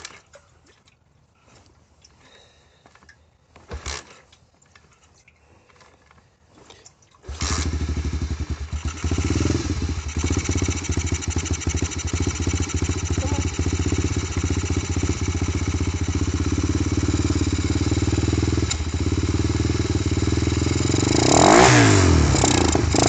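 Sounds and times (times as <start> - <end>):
dirt bike engine running: 7.3 - 23.0
engine revving: 7.3 - 23.0.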